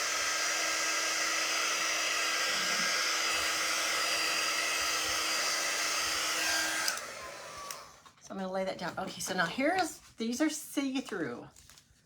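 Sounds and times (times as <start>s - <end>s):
hair dryer blowing: 0.0s - 8.1s.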